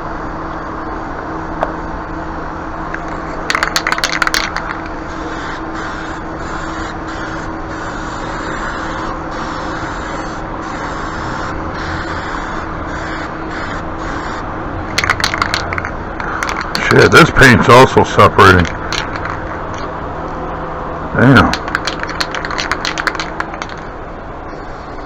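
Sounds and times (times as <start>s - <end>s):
spray can mixing ball clicking: 3.0s - 5.0s, 14.9s - 17.0s, 18.6s - 19.8s, 21.5s - 23.9s
spray paint hissing: 3.1s - 16.9s, 21.5s - 23.8s.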